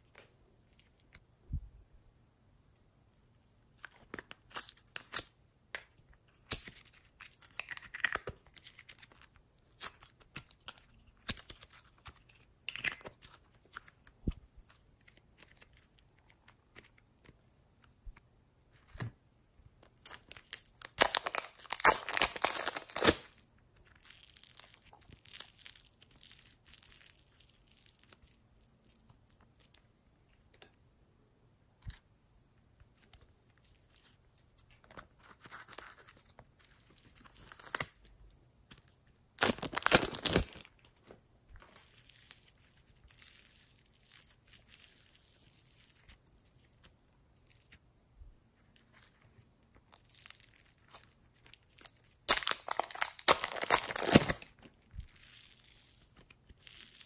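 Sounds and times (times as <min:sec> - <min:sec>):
slime crackling and popping: 0:20.0 - 0:29.8, 0:39.3 - 0:40.6, 0:49.7 - 0:57.0.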